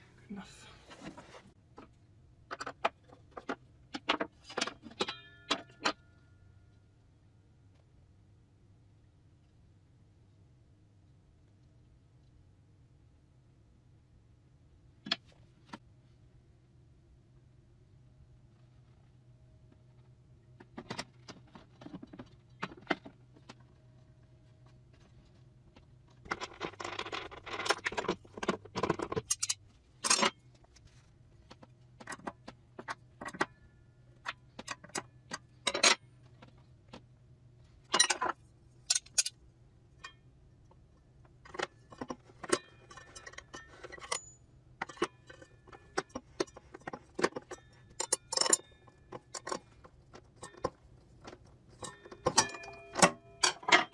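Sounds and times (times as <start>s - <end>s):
clicks and metallic clinks: 29.2s - 30.4s, 38.0s - 39.3s, 51.8s - 53.9s.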